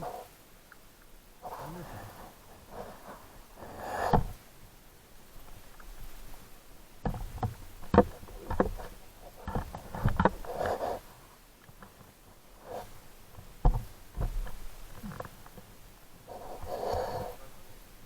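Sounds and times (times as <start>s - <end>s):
knocks and thumps: 4.1s - 4.4s, 13.4s - 15.7s.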